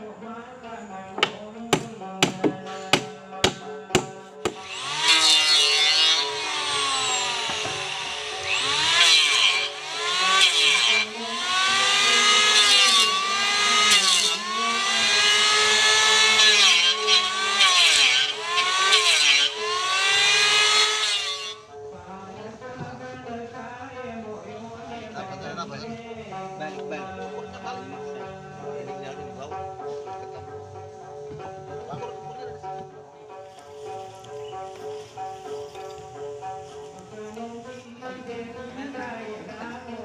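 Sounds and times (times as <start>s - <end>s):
squealing scraping sawing: 4.6s - 21.6s.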